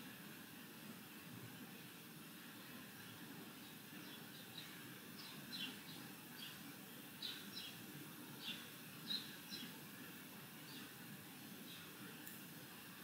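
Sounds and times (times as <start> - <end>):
low room hum: 0.0 - 13.0
faint bird chirps: 3.0 - 6.6, 7.2 - 7.8, 8.4 - 9.8.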